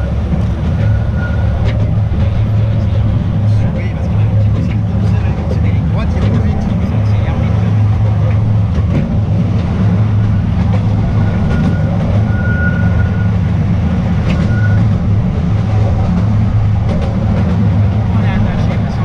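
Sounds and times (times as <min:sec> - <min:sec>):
train wheels rumbling on rails: 0:00.0 - 0:19.0
high squeal: 0:00.8 - 0:01.8, 0:11.2 - 0:13.4, 0:14.2 - 0:14.9.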